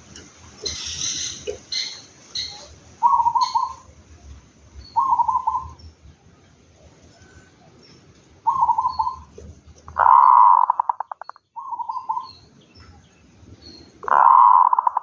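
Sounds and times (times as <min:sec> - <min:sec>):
small birds chirping: 0:00.6 - 0:15.0
dove cooing: 0:03.0 - 0:03.9, 0:05.0 - 0:05.8, 0:08.4 - 0:12.3, 0:14.0 - 0:15.0.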